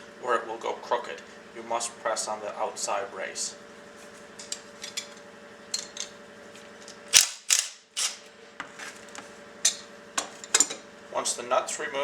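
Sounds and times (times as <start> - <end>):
sharp loud click: 7.1 - 8.2.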